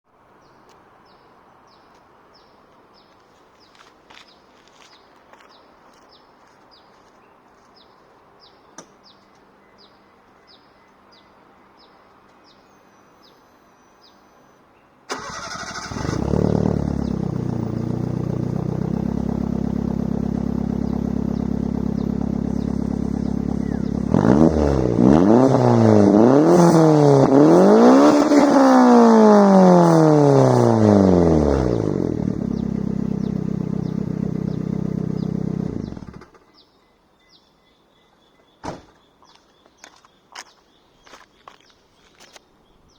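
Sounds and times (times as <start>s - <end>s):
engine idling and revving: 15.1s - 36.4s.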